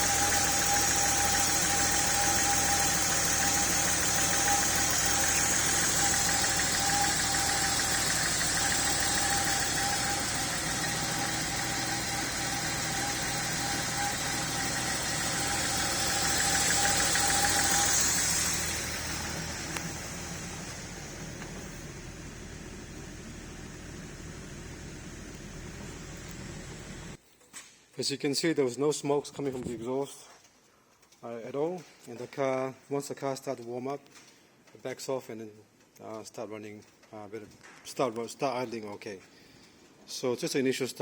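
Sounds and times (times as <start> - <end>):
car engine idling: 0.0 - 27.2
thin whine: 0.0 - 27.2.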